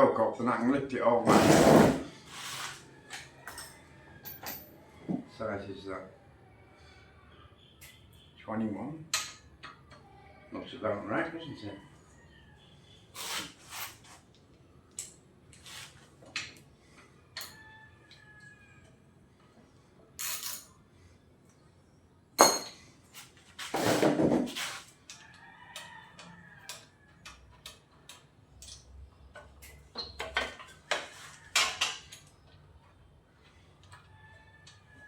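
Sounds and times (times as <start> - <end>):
tools and metal parts clinking: 3.2 - 4.8, 9.1 - 10.0, 20.2 - 20.8, 22.4 - 22.9, 25.0 - 32.6.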